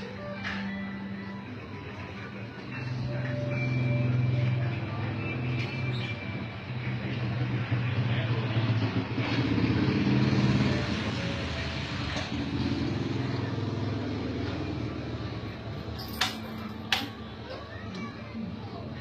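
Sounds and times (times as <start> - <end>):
motorcycle engine idling and revving: 2.9 - 17.2.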